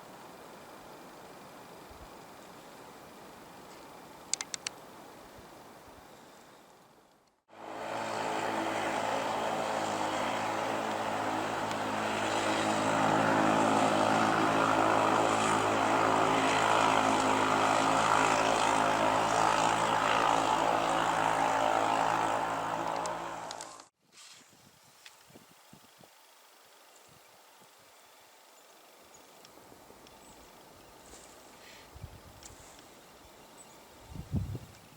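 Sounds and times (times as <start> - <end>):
steady engine drone: 7.5 - 23.9.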